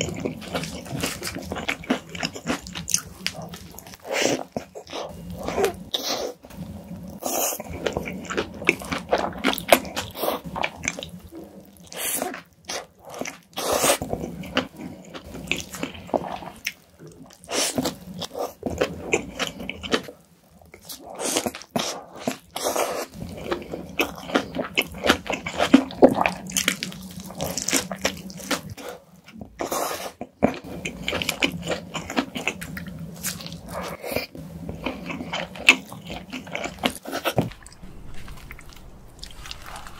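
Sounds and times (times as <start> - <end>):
burger being bitten and chewed: 20.8 - 39.9.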